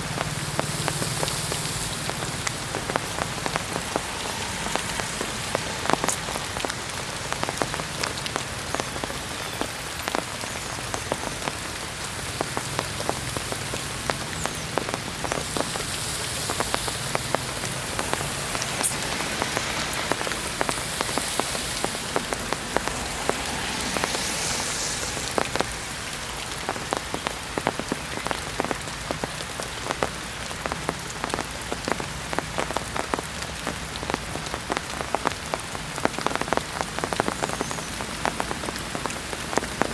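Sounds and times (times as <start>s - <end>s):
heavy rain falling: 0.0s - 39.9s
raindrops spattering on surfaces: 0.0s - 39.9s.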